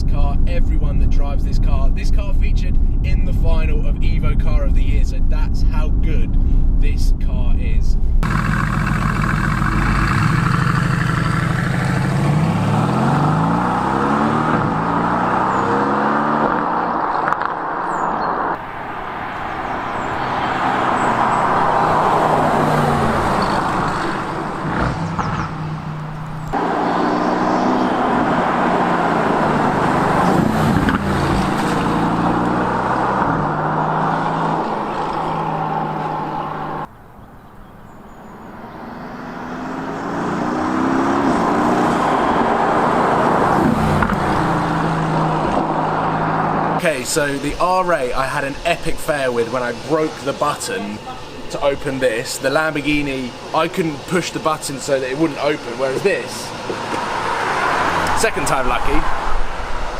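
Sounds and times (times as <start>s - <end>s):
tyre and road noise: 7.9s - 59.9s
car engine accelerating: 8.0s - 59.9s.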